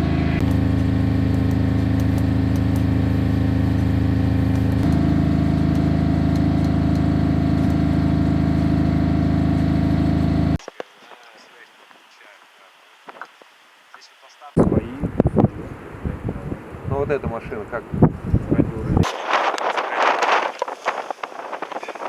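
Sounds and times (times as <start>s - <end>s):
engine running steadily: 0.0s - 10.6s.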